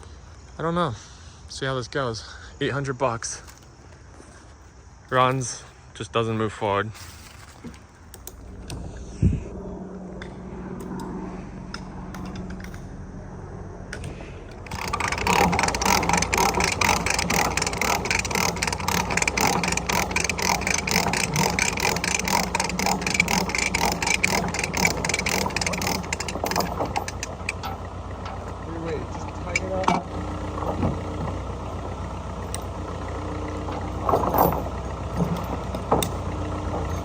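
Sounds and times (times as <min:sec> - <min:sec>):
low steady hum: 0:07.1 - 0:37.0
mechanical clatter of gears: 0:10.2 - 0:13.0, 0:13.9 - 0:31.8, 0:33.6 - 0:37.0.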